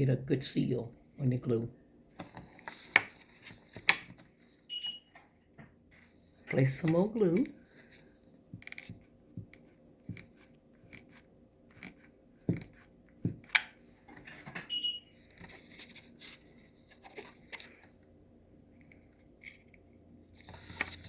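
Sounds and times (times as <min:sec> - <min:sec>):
small handling clicks and crinkles: 0:15.2 - 0:18.0.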